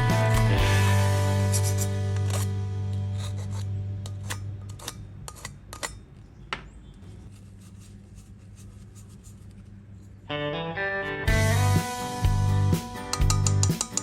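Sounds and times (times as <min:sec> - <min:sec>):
background music: 0:00.0 - 0:04.2, 0:10.3 - 0:14.0
hand tools clicking and scraping: 0:00.1 - 0:00.6, 0:01.4 - 0:06.3, 0:07.0 - 0:10.2, 0:13.1 - 0:14.0.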